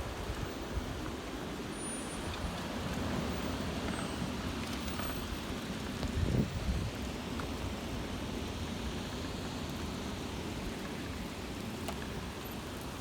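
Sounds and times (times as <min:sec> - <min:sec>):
heavy rain: 0:00.0 - 0:13.0
gusting wind: 0:06.0 - 0:07.0.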